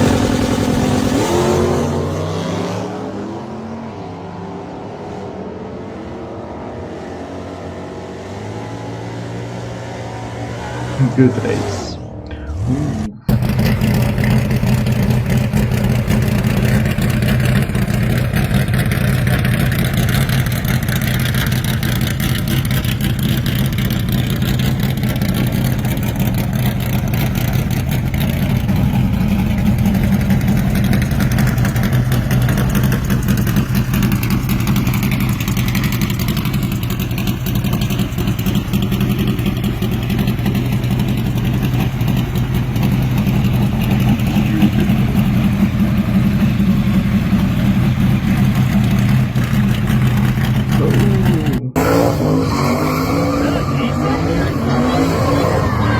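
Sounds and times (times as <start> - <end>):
car engine running near idle: 0.0 - 2.0, 13.3 - 52.6.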